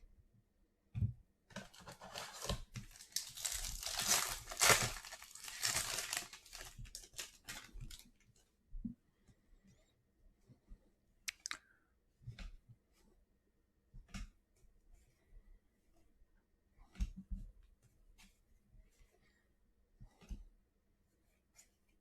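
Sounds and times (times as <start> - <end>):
foil wrapper tearing and crinkling: 1.8 - 8.1.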